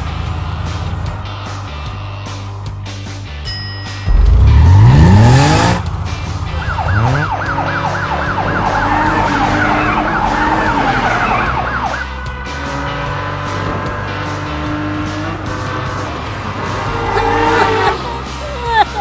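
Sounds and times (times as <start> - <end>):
cartoon engine revving: 4.1 - 5.9
wailing siren: 6.6 - 12.0
background music: 9.9 - 19.0.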